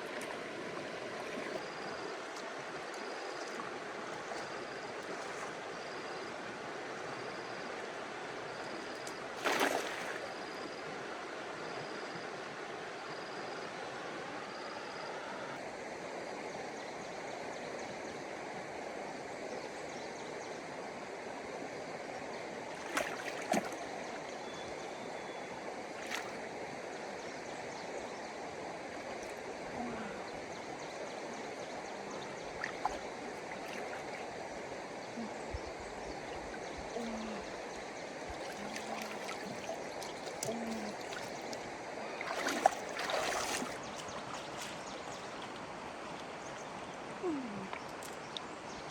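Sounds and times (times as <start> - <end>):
floodwater flowing: 0.0 - 11.0, 22.6 - 24.3, 25.6 - 27.2, 28.4 - 48.9.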